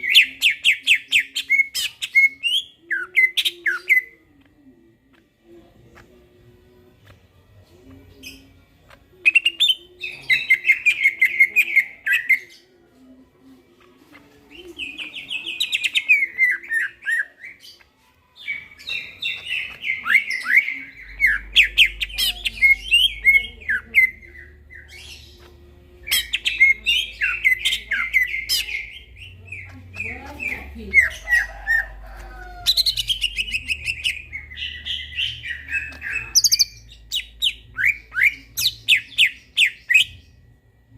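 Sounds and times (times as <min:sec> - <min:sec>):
bird chattering and warbling: 0:14.1 - 0:40.2.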